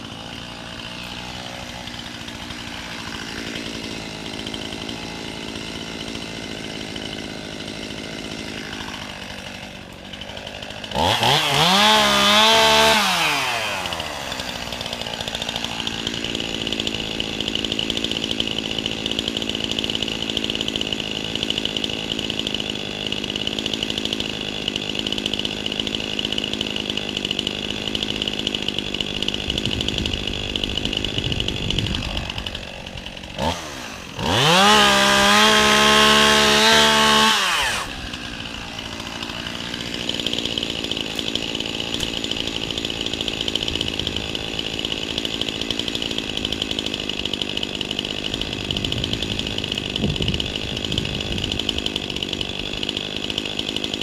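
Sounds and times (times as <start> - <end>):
chainsaw running and revving: 0.0 - 54.0.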